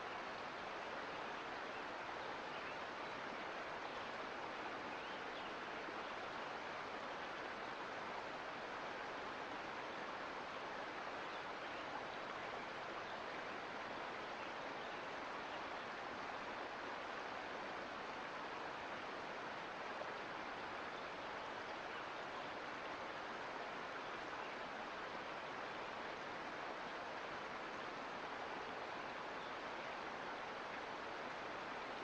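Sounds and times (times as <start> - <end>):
creek water rushing: 0.0 - 32.0.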